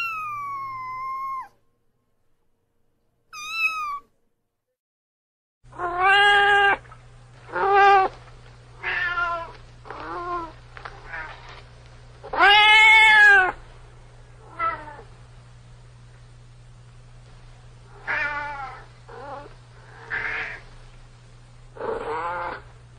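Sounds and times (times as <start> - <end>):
cat meowing: 0.0 - 1.6, 3.4 - 4.1, 5.8 - 6.8, 12.3 - 13.6
low steady hum: 0.0 - 4.4, 5.7 - 22.9.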